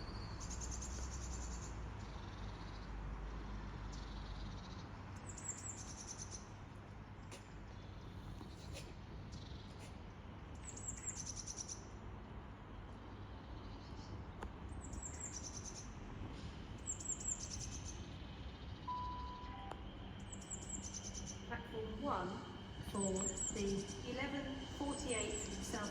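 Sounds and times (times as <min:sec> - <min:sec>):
songbird chirping: 0:16.8 - 0:25.9
brief beep: 0:18.9 - 0:19.8.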